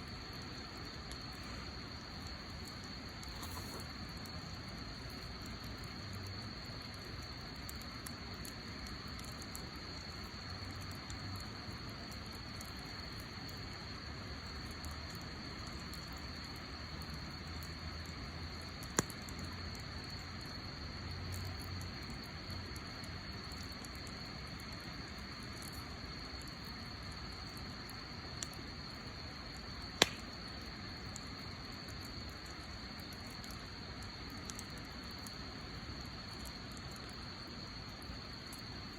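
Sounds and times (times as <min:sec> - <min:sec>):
wood fire crackling: 0:00.0 - 0:38.9
loud sharp pop: 0:30.0 - 0:30.3.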